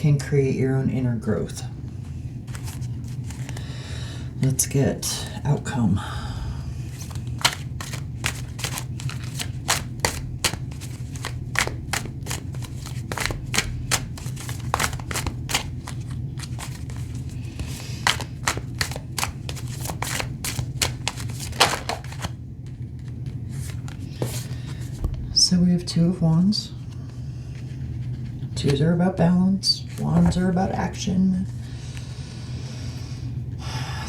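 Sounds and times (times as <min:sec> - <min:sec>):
cards being shuffled: 0:02.4 - 0:03.8, 0:06.9 - 0:25.4, 0:27.5 - 0:28.8.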